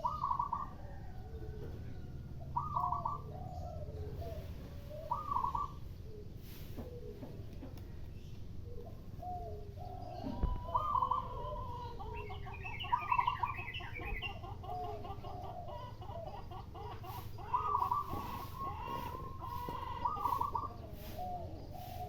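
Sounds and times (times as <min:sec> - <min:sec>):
doves cooing: 0:00.0 - 0:22.0
small birds chattering: 0:00.0 - 0:22.0
broom sweeping: 0:06.4 - 0:06.9, 0:17.9 - 0:22.0.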